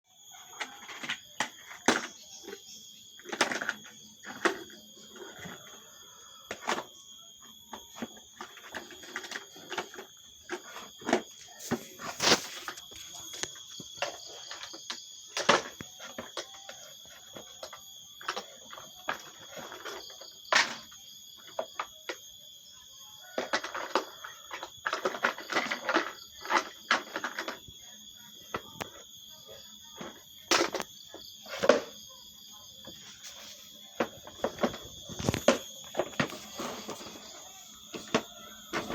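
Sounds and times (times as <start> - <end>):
plastic toys scraping: 8.0 - 14.8, 32.8 - 38.9.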